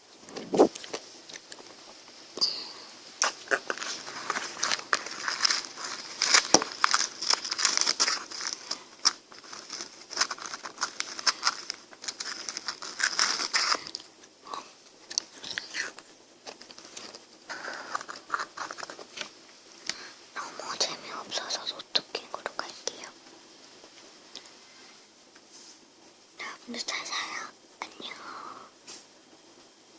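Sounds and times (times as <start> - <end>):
crunching ice bar: 3.2 - 14.0.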